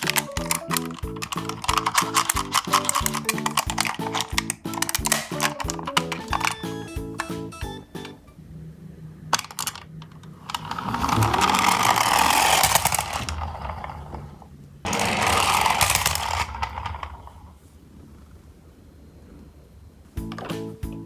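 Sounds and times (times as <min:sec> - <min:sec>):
toy truck wheels rattling: 0:00.0 - 0:08.4, 0:09.1 - 0:17.6.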